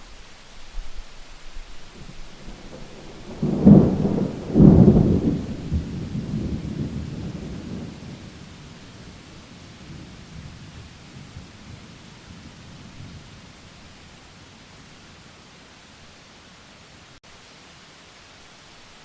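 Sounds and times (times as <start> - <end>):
steady rain: 0.0 - 19.0
thunder clap and rumble: 2.0 - 14.6.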